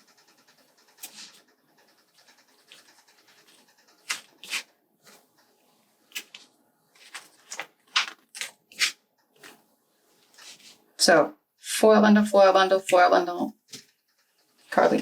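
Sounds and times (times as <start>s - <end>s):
paper sheets rustling and scraping: 1.0s - 1.5s, 2.2s - 5.3s, 6.1s - 9.6s, 10.2s - 10.8s.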